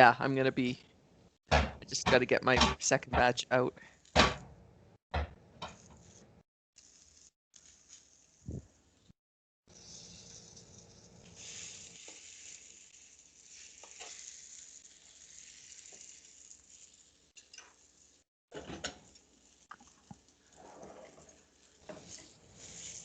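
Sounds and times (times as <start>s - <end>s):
food frying in hot oil: 6.8s - 9.1s, 9.7s - 18.3s, 19.0s - 23.0s.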